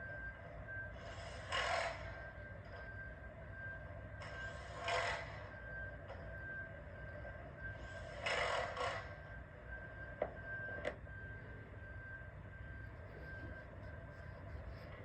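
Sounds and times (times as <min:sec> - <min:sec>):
steady low rumble: 0:09.7 - 0:15.0.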